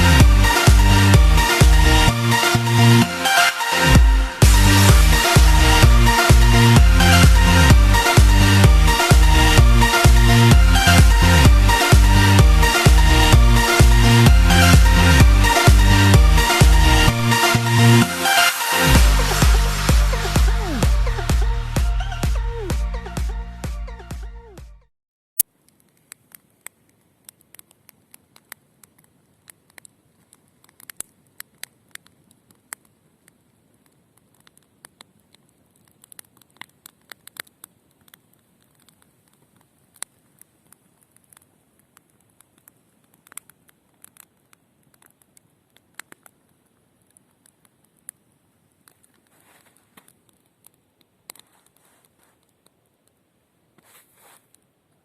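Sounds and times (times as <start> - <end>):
campfire crackling and popping: 0.0 - 2.8, 3.6 - 21.6, 25.4 - 55.0
faint fire hiss: 25.4 - 55.0.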